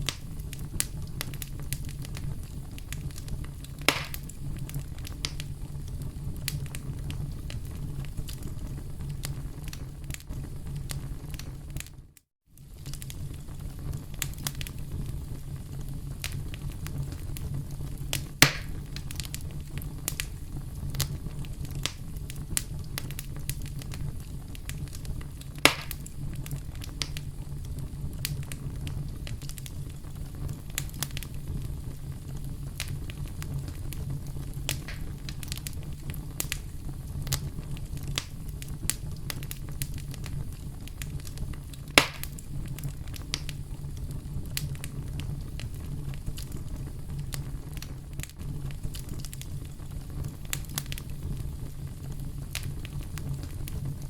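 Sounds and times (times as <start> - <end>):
campfire crackling: 0.0 - 54.0
fire snaps and pops: 0.0 - 54.0.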